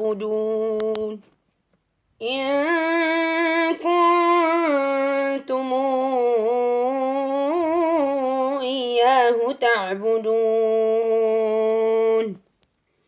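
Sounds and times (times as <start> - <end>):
man reciting melodically: 2.2 - 12.4.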